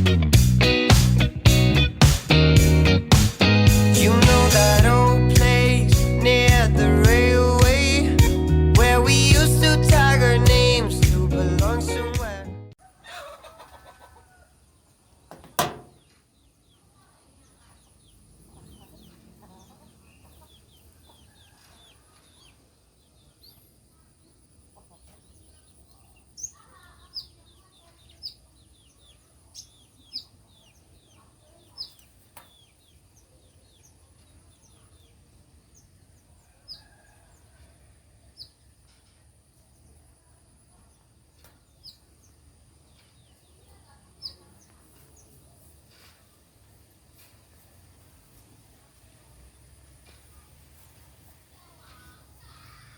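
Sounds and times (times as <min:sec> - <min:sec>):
birds calling: 0:13.0 - 0:37.6, 0:40.8 - 0:45.4
sharp knock: 0:15.3 - 0:16.0.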